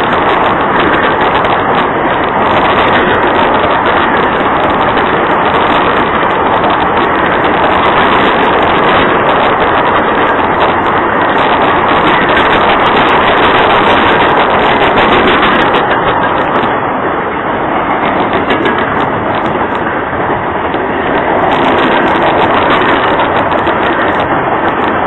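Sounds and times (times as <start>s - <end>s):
freight train rolling past: 0.0s - 25.0s.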